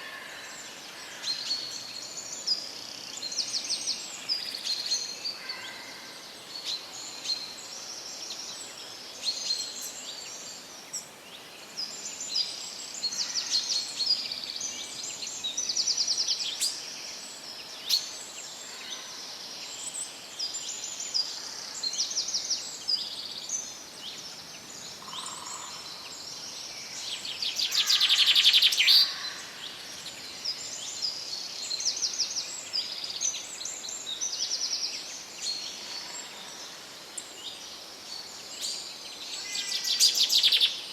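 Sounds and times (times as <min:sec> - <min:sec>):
faint forest background hiss: 0:00.0 - 0:40.9
songbirds chirping and singing: 0:19.6 - 0:40.9.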